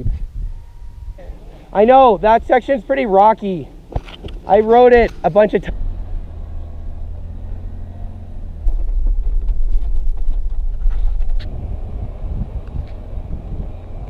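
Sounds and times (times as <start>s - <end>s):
vehicle driving over dirt: 0.0s - 14.0s
knocks and rattles: 8.6s - 11.4s.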